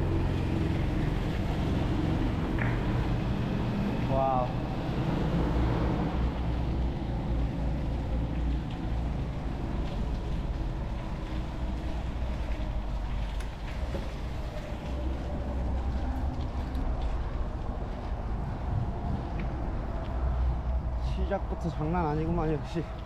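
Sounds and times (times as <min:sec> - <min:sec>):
bike riding noise: 0:00.0 - 0:23.0
wind rumble on camera: 0:00.0 - 0:23.0
ticks and clicks from tyres: 0:00.6 - 0:03.6, 0:06.2 - 0:21.3.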